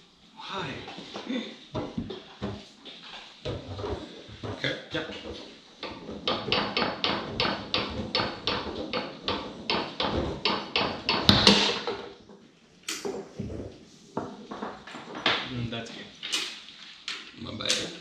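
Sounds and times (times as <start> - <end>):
foosball ball clacking: 0.8 - 18.0
hard foosball strike: 3.4 - 15.6.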